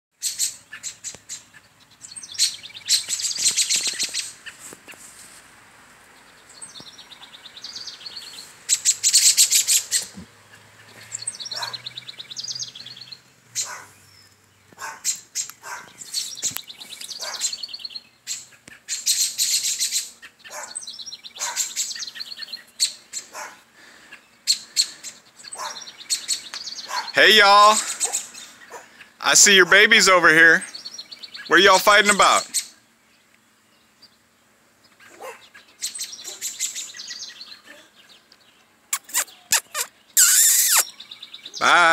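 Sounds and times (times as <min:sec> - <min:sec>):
songbirds chattering: 0:00.2 - 0:05.1, 0:06.0 - 0:41.9
short single bird chirps: 0:38.9 - 0:41.0.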